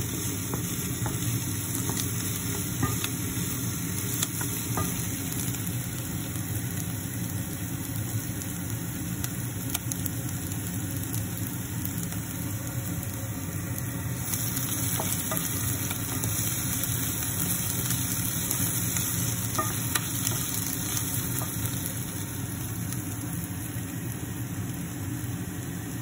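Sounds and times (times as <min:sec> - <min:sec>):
onions sizzling in a saucepan: 0:00.0 - 0:26.0
wooden spoon scraping and tapping: 0:00.4 - 0:03.3, 0:14.7 - 0:16.4, 0:19.2 - 0:20.6
steady low hum: 0:08.3 - 0:26.0.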